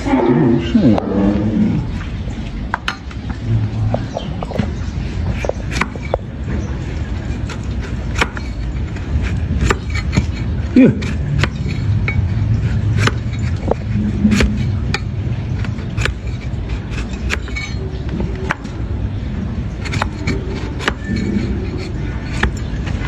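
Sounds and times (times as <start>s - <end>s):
low rumble: 0.0s - 8.1s
hoof-trimming tools clicking: 7.4s - 18.8s, 19.8s - 23.0s.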